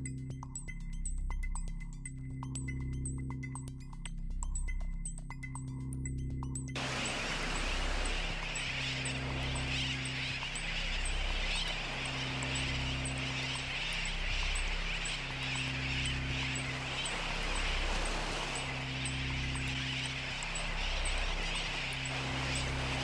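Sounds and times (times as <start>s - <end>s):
low sustained tones: 6.7s - 23.0s
dense chattering hiss: 6.8s - 23.0s.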